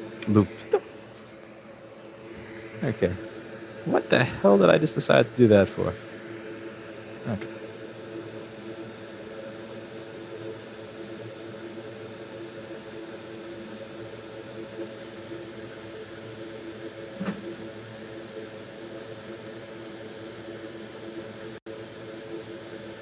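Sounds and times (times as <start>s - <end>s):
electric fan whirring: 0.0s - 23.0s.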